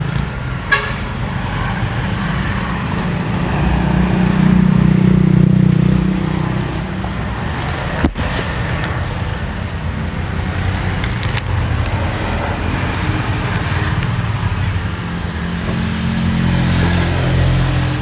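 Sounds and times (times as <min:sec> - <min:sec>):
passing vehicle engine hum: 0:00.0 - 0:18.0
road traffic rumble: 0:00.0 - 0:18.0.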